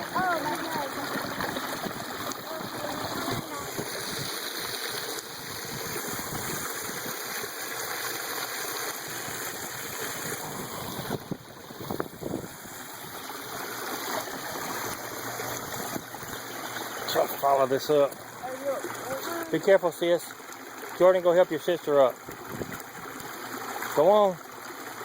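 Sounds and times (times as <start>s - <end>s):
waterfall rushing: 0.0s - 6.7s.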